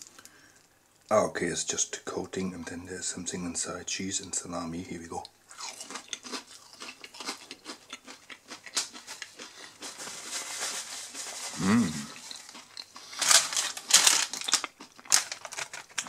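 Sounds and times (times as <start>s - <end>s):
person chewing crispy food: 5.5s - 16.0s
paper napkins crinkling: 8.8s - 16.0s
person humming mmm: 11.5s - 12.3s.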